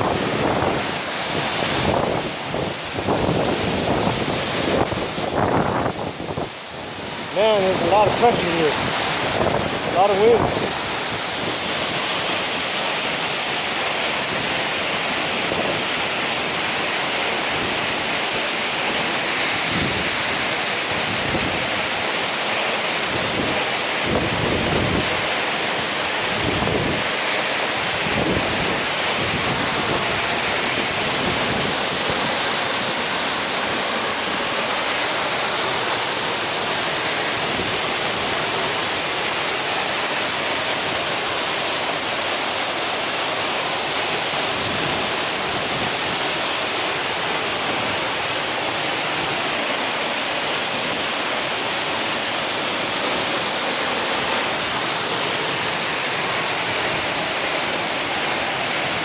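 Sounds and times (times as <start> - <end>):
waterfall rushing: 0.0 - 59.0
wind buffeting microphone: 8.8 - 11.7.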